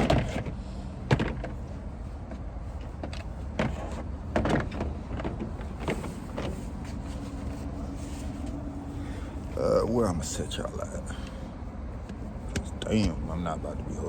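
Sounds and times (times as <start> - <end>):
steady low background noise: 0.0 - 14.0.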